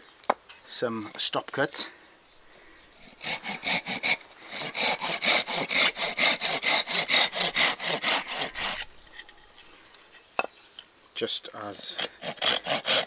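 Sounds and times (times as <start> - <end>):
hand saw cutting wood: 3.0 - 9.0, 11.8 - 13.0.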